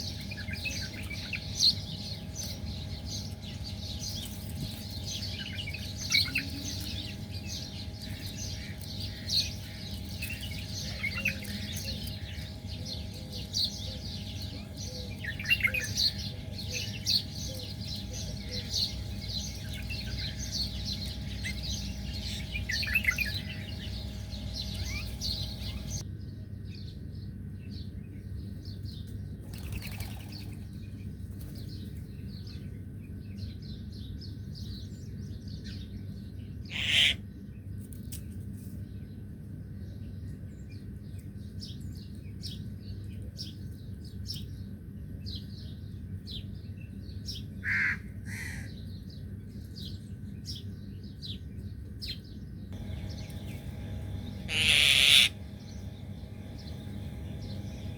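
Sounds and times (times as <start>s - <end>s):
small birds chirping: 0.0s - 26.0s, 48.3s - 57.9s.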